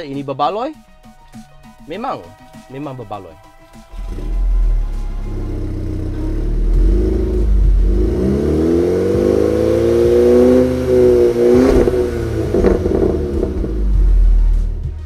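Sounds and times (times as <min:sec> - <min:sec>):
exhaust pops: 0:03.9 - 0:14.9
car engine revving: 0:03.9 - 0:15.0.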